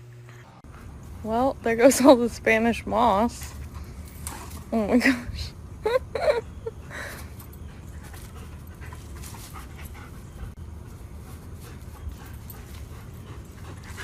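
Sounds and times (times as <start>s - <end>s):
dog panting: 7.4s - 14.0s.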